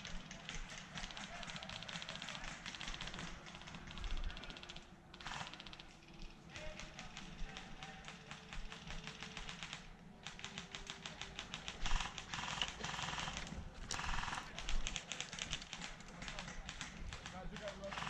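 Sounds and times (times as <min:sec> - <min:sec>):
airsoft guns firing automatic: 0:00.0 - 0:18.0.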